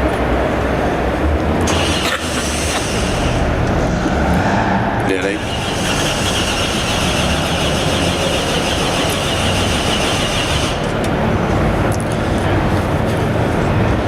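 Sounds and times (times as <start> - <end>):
car engine cranking: 1.4 - 3.8, 5.3 - 11.2
starter whine: 5.2 - 11.1.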